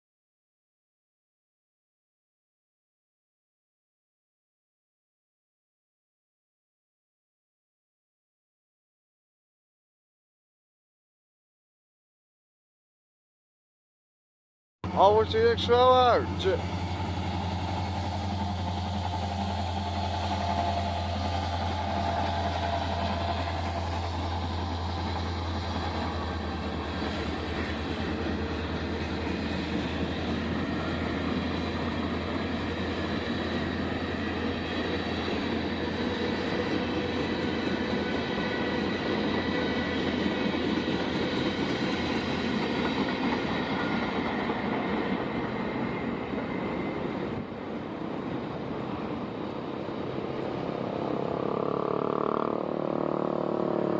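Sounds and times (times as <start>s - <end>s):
train rail cars rumbling: 14.8s - 52.0s
faint high wheel squeal: 43.5s - 47.8s.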